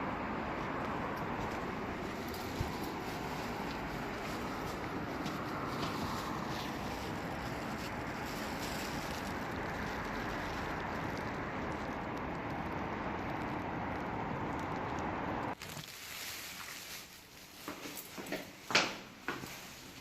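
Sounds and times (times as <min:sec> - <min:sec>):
rushing outdoor noise: 0:00.0 - 0:15.6.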